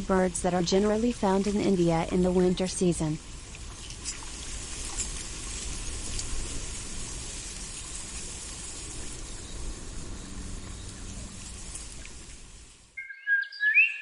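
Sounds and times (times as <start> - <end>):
steady rushing noise: 0.0 - 13.0
faint ticks: 10.6 - 12.4.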